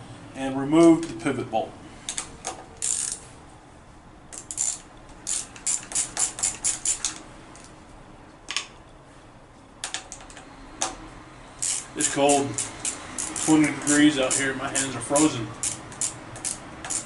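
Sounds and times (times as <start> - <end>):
socket ratchet clicking: 2.1 - 3.2, 4.3 - 7.2, 11.6 - 17.0.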